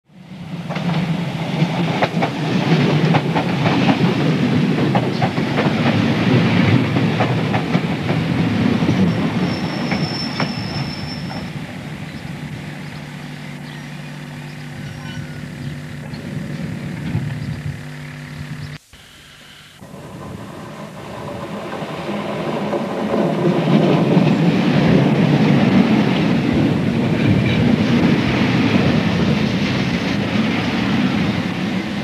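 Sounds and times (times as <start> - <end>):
train low hum: 0.1 - 18.9, 19.8 - 32.0
train wheels clacking over joints: 0.6 - 14.0
high squeal: 9.0 - 19.8.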